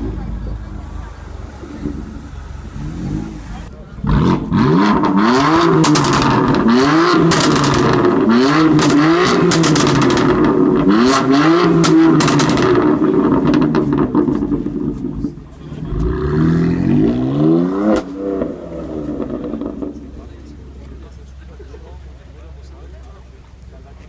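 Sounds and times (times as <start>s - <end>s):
car engine revving: 0.0s - 21.2s
exhaust crackles and pops: 3.0s - 16.2s.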